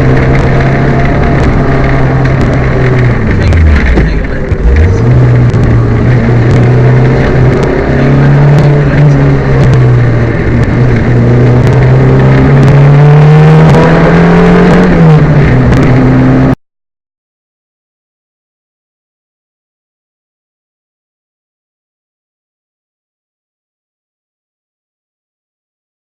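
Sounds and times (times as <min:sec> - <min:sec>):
rally car engine misfiring: 0:00.0 - 0:16.6.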